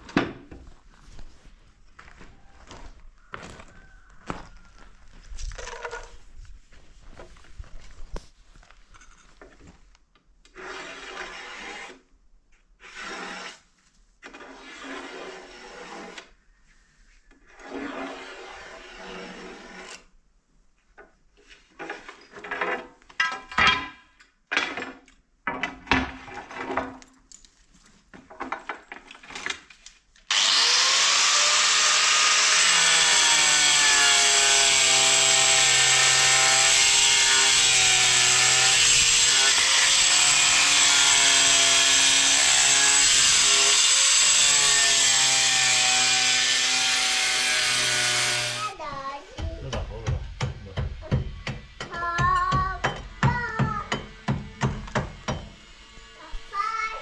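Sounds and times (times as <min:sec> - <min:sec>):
rasping strokes on wood: 0:10.6 - 0:12.0, 0:14.4 - 0:16.3, 0:17.6 - 0:20.1
power tool motor whine: 0:30.3 - 0:48.7.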